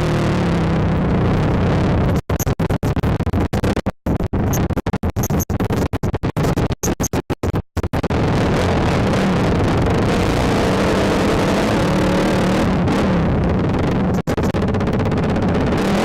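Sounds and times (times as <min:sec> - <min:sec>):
quad bike engine: 0:00.0 - 0:02.2, 0:08.0 - 0:16.0.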